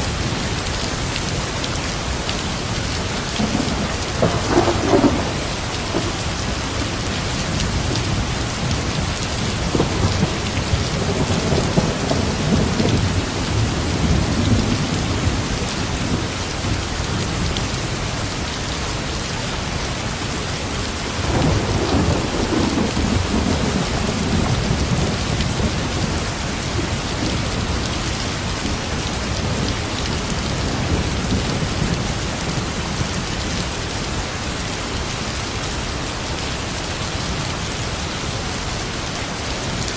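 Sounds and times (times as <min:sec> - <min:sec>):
heavy rain falling: 0:00.0 - 0:39.9
distant thunder rumbling: 0:03.3 - 0:08.8, 0:09.5 - 0:16.3, 0:21.2 - 0:27.9.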